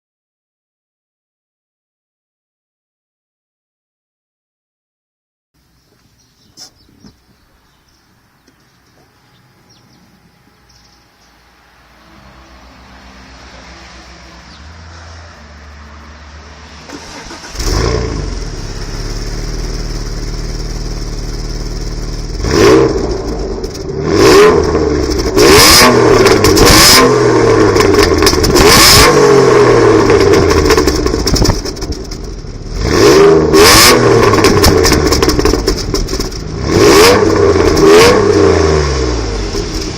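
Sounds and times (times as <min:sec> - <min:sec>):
car engine starting and revving: 0:09.3 - 0:39.9.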